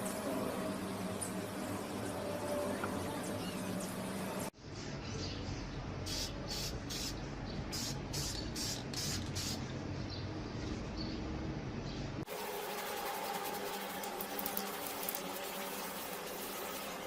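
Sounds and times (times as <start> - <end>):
short hissing bursts: 6.1 - 9.6.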